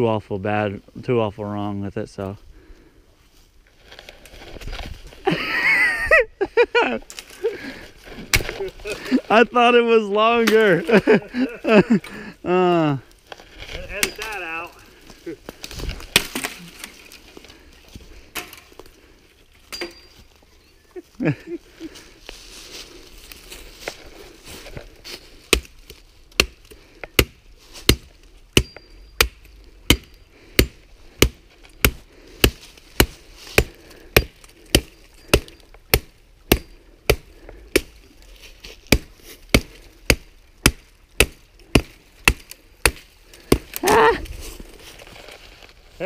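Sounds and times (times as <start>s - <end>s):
machete chopping wood: 8.3s - 8.6s, 16.0s - 16.9s, 25.5s - 25.7s, 26.4s - 38.0s, 38.9s - 44.0s
person shouting or grunting: 43.8s - 44.2s.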